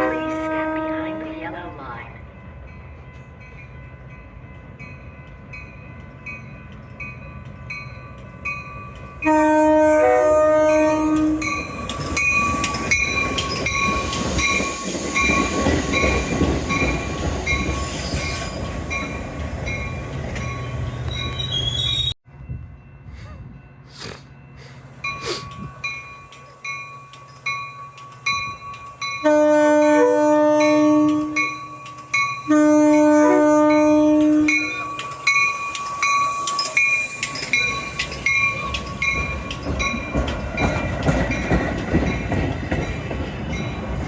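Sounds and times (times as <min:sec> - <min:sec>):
train horn chord: 0:00.0 - 0:01.8, 0:09.2 - 0:11.5, 0:29.2 - 0:31.5, 0:32.4 - 0:34.9
crossing bell ringing: 0:00.0 - 0:44.0.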